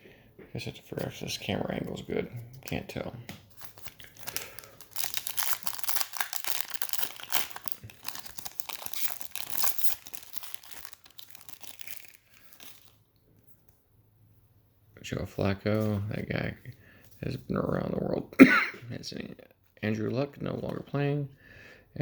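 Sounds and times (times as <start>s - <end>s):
wrapper tearing and crinkling: 3.5s - 13.0s.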